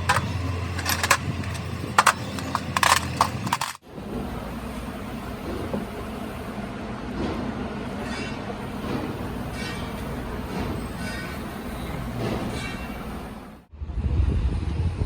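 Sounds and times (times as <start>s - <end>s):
metallic knocks and clanks: 0.0s - 3.8s
low mechanical rumble: 0.0s - 8.0s.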